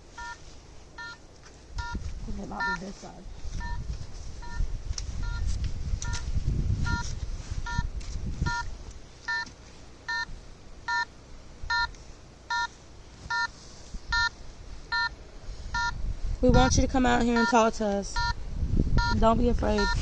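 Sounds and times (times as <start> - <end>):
electronic detector beeping: 0.1 - 0.4, 1.0 - 1.2, 1.8 - 2.9, 3.6 - 8.7, 9.3 - 9.5, 10.1 - 10.3, 10.9 - 11.1, 11.7 - 11.9, 12.5 - 12.7, 13.3 - 13.5, 14.1 - 18.4, 19.0 - 20.0.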